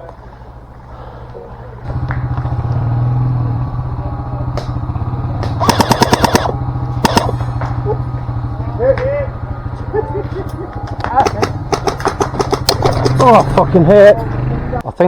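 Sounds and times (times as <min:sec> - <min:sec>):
low engine rumble: 0:00.0 - 0:15.0
airsoft gun firing: 0:05.4 - 0:07.7, 0:11.2 - 0:13.2.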